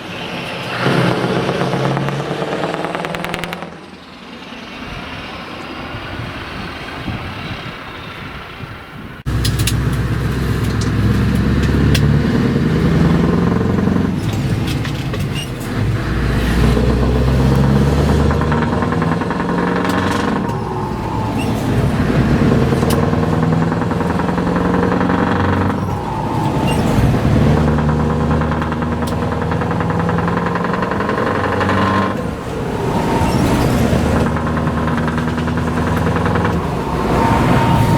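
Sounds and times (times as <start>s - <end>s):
truck engine deep exhaust note: 0.6s - 5.0s, 9.3s - 37.9s.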